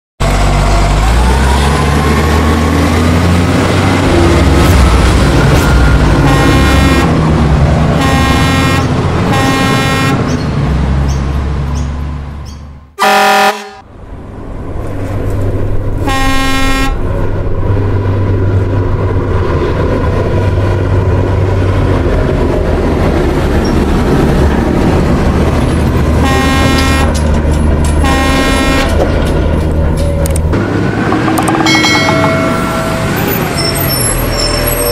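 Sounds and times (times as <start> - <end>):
truck engine rumbling: 0.2 - 34.9
truck horn honking: 6.0 - 7.3, 7.9 - 10.4, 13.0 - 13.9, 16.0 - 17.0, 26.2 - 27.2, 28.0 - 29.1.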